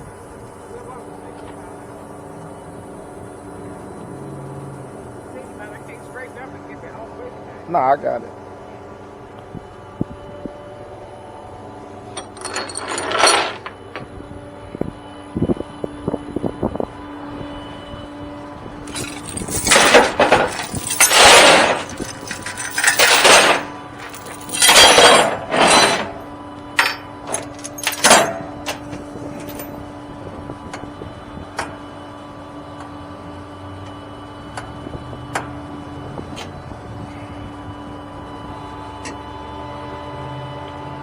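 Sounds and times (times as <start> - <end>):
truck low hum: 0.0 - 41.0
metal gear clanking and rattling: 12.2 - 13.7, 18.8 - 29.8.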